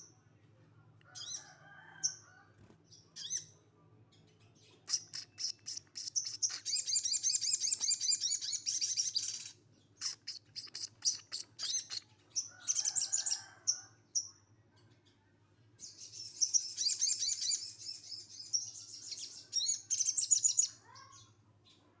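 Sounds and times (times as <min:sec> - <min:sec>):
bird short chips: 0:04.9 - 0:06.9
songbird trilling: 0:04.9 - 0:12.0.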